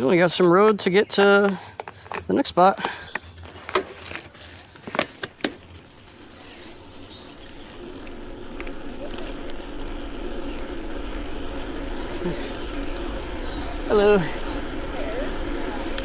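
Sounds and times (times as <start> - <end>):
tyres rolling on road: 0.0 - 16.0
bicycle clicks and knocks: 1.2 - 6.2
wind rumble: 5.6 - 16.0.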